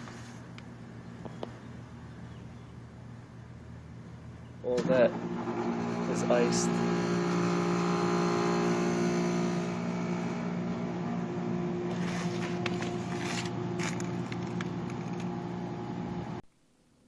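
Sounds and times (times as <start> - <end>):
air conditioner unit humming: 0.0 - 16.5
scraping crackling handling noises: 11.9 - 15.4.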